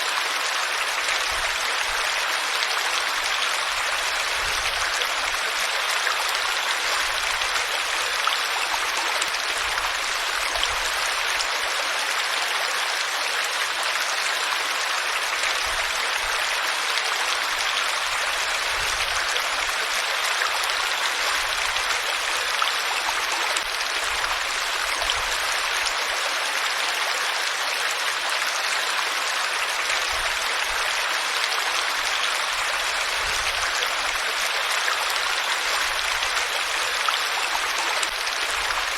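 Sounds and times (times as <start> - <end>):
water rushing in a stream: 0.0 - 38.9.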